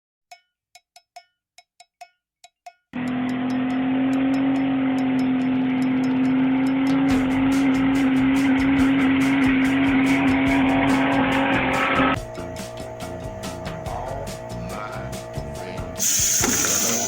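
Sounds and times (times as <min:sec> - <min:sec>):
music with beat: 0:01.0 - 0:17.0
car engine running: 0:03.0 - 0:17.0.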